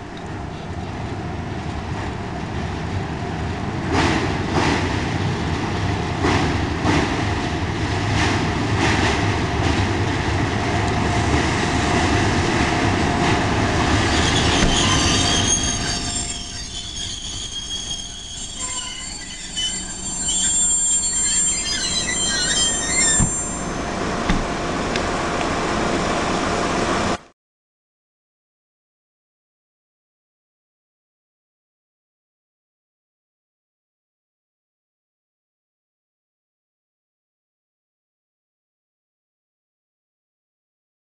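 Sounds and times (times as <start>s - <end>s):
high-pitched wheel squeal: 13.9s - 23.8s.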